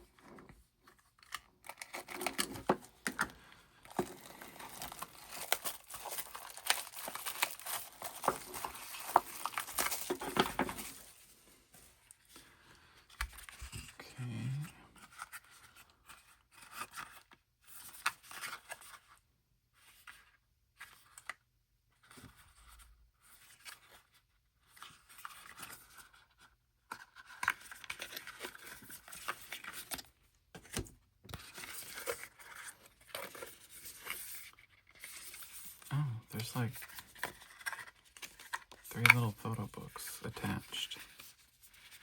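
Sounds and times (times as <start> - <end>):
packaging tearing and crinkling: 3.9 - 11.1.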